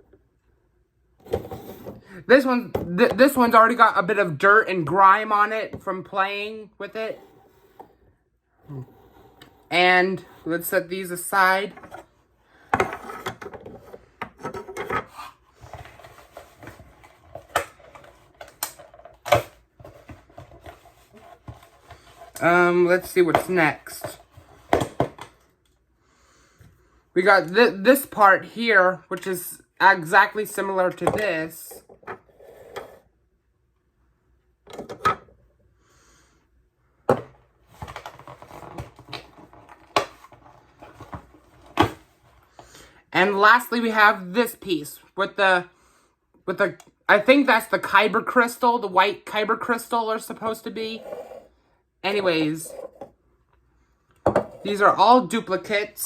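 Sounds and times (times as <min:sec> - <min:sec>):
objects rubbing and rustling: 0:01.2 - 0:02.4, 0:05.1 - 0:25.6, 0:30.1 - 0:33.2, 0:37.1 - 0:42.9, 0:50.3 - 0:53.2, 0:54.2 - 0:55.9.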